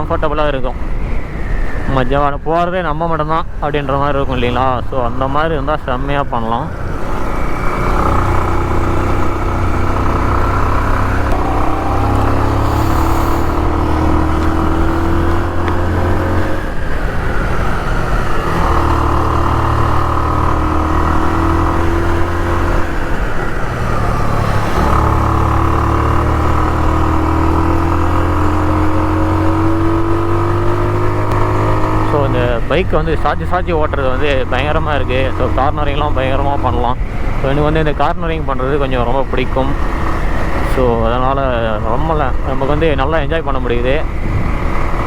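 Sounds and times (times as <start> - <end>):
motorcycle engine pulling uphill: 6.7 - 45.0.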